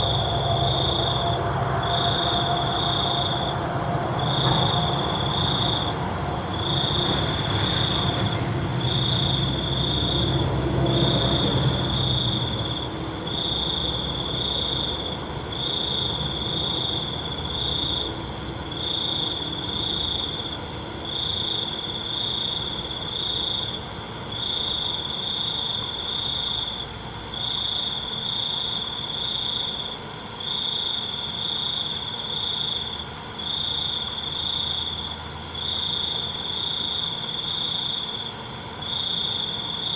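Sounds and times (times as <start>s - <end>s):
high-pitched insect buzz: 0.0s - 10.3s
low rumble: 0.0s - 13.3s
crickets chirping: 0.0s - 39.9s.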